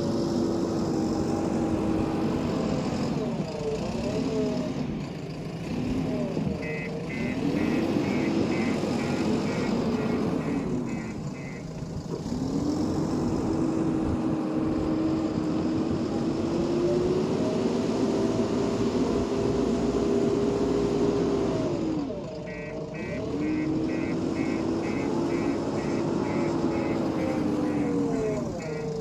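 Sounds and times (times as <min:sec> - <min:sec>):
diesel engine revving: 0:00.0 - 0:29.0
reversing alarm beeps: 0:06.6 - 0:11.7.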